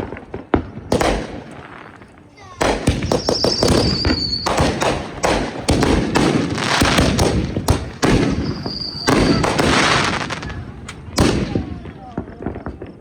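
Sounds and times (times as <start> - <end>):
fireworks bangs: 0.0 - 13.0
fireworks crackling: 0.0 - 13.0
high firework whistle: 2.8 - 5.4, 7.8 - 12.0.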